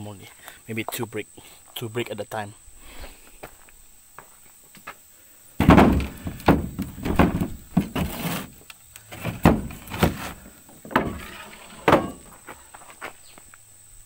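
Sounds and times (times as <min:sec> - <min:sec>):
bricks knocking together: 0:05.6 - 0:08.4
brick scraping: 0:05.6 - 0:12.4.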